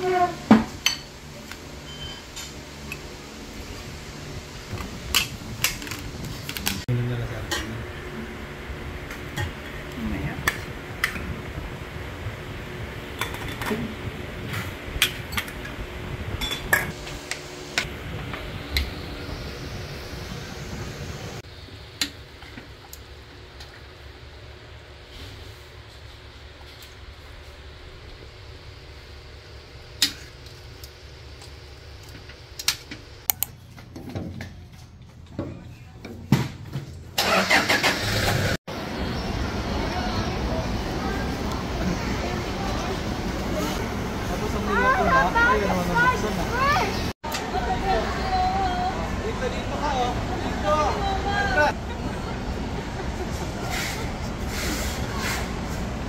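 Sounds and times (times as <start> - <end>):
kitchenware clinking: 0.6 - 1.1, 16.4 - 16.9
vehicle engine low rumble: 1.1 - 36.0.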